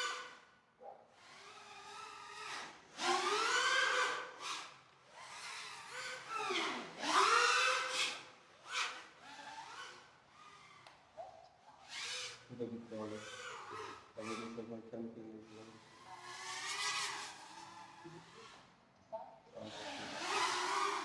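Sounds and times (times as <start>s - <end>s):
quadcopter motors whining: 11.8s - 18.7s, 19.6s - 21.0s.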